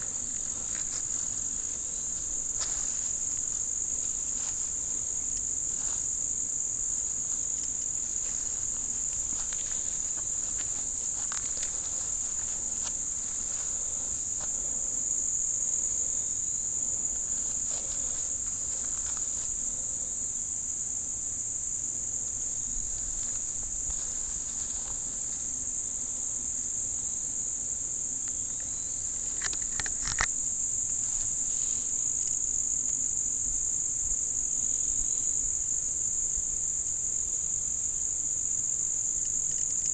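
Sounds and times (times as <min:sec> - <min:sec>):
high-pitched insect chorus: 0:00.0 - 0:39.9
faint ticks: 0:07.3 - 0:14.6, 0:28.2 - 0:31.3, 0:39.1 - 0:39.9.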